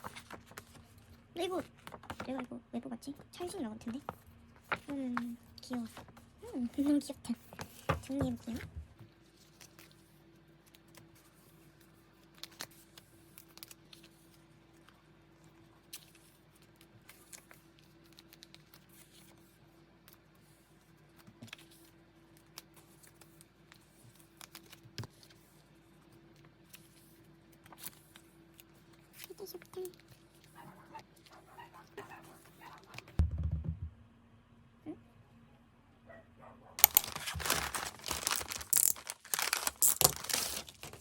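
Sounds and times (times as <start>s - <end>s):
small items clicking and tapping: 36.8s - 41.0s.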